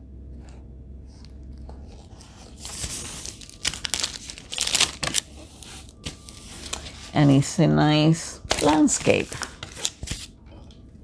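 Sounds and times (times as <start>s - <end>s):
packaging crinkling and rustling: 1.6s - 10.4s.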